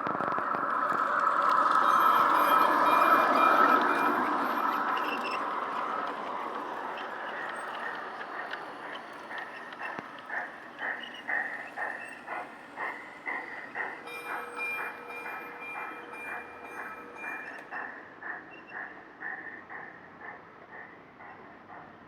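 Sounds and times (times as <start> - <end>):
model train running on track: 0.0 - 22.0.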